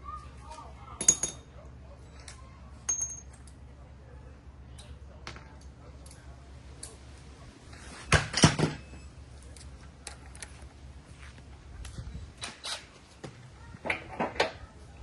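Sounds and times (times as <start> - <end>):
sharp knocks and clanks of tools: 1.0 - 1.6, 2.9 - 3.6, 12.4 - 14.6
light clicks of parts handled: 9.4 - 12.6.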